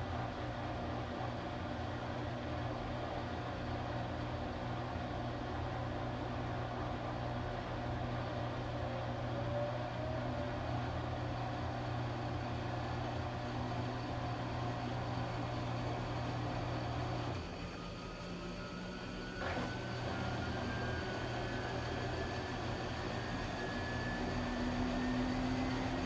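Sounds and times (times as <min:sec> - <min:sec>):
washing machine motor hum: 0:06.3 - 0:26.0.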